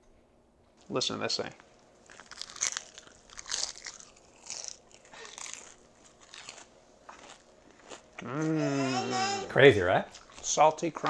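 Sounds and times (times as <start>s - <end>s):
crispy chicken skin crunching: 2.0s - 8.0s.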